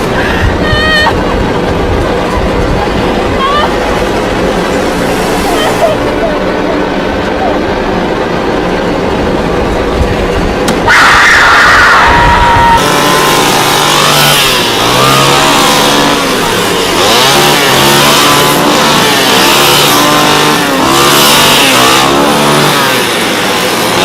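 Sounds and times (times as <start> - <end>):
chainsaw engine revving: 12.8 - 24.0.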